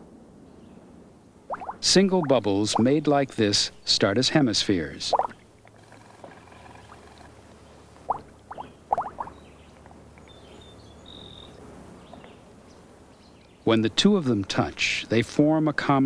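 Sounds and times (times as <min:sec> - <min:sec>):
faint background hiss: 0:00.0 - 0:16.0
water bubbles plopping: 0:01.5 - 0:03.0, 0:05.1 - 0:05.4, 0:08.0 - 0:09.4.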